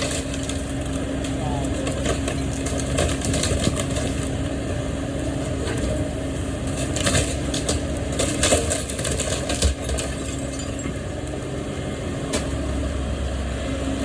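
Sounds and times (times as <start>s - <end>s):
timber cracking and crunching: 0.0s - 4.5s, 6.7s - 10.5s.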